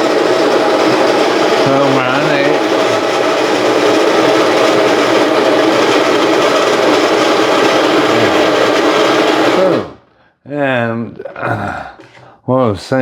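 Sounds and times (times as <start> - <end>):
electric coffee grinder whirring: 0.0 - 10.1.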